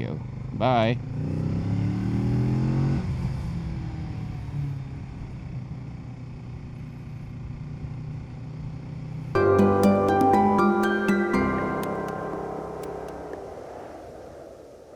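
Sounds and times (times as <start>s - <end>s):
plucked-string music: 9.4s - 13.9s.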